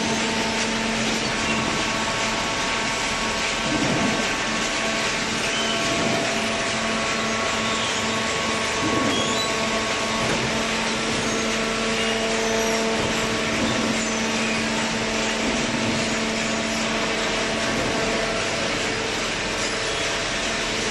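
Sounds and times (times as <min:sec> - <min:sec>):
baler machine humming: 0:00.0 - 0:20.9.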